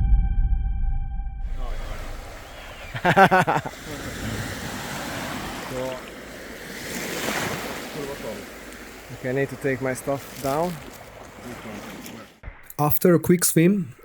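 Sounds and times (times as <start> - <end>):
sea waves washing on shore: 1.5 - 12.4.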